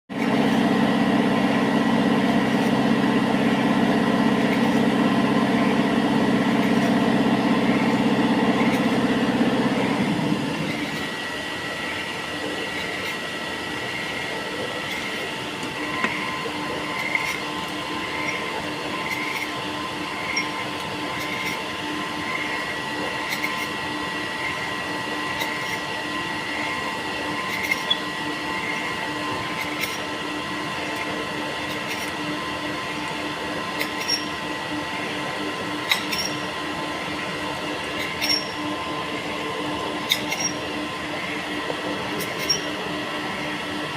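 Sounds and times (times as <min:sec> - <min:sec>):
high whine: 0:00.1 - 0:23.3.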